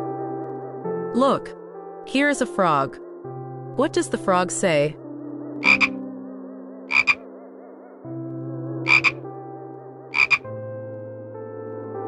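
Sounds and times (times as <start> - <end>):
frog croaking: 5.6 - 6.0, 6.9 - 7.2, 8.9 - 9.2, 10.2 - 10.5.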